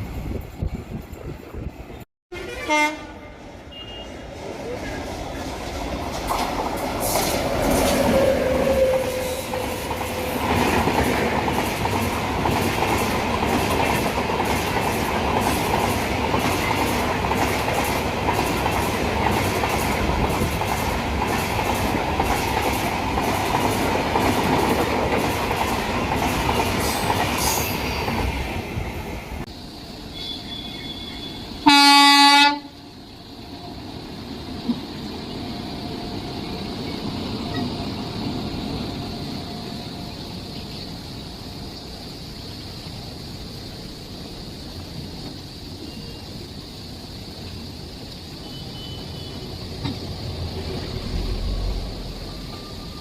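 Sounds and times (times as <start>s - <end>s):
train horn blast: 2.3s - 4.2s, 30.1s - 32.8s
train wheels clattering on rails: 4.3s - 29.5s, 49.2s - 53.0s.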